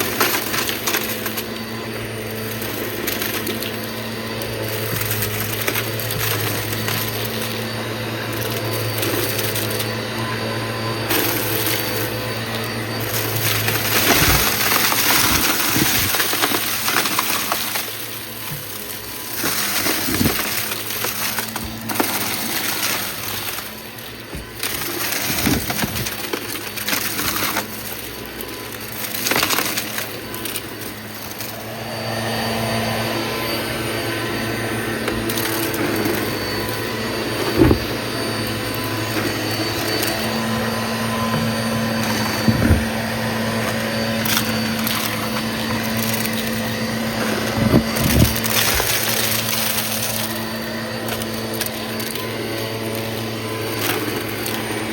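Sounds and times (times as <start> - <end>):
debris crunching and rattling: 0.0 - 32.6, 34.9 - 54.9
vacuum cleaner running: 0.0 - 54.9.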